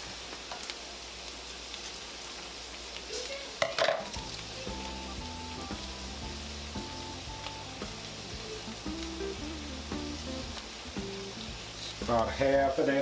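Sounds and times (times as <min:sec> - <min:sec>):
meat sizzling in a pan: 0:00.0 - 0:13.0
faint background music: 0:04.1 - 0:13.0.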